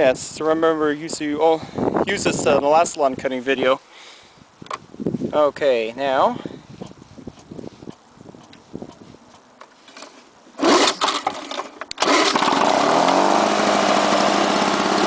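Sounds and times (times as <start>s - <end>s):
pull starter rattle: 10.0s - 15.0s
mower engine running: 10.6s - 15.0s.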